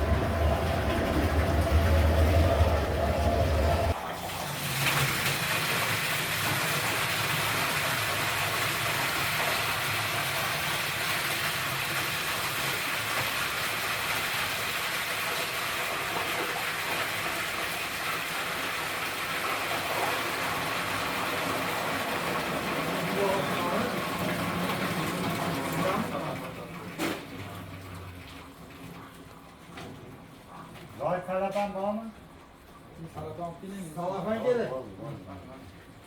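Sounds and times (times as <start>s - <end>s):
moving vehicle rushing noise: 0.0s - 4.0s.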